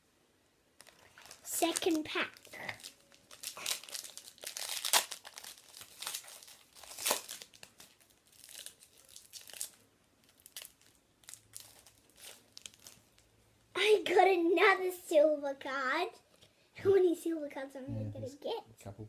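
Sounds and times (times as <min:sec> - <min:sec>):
wrapper crinkling and tearing: 0:00.8 - 0:13.3.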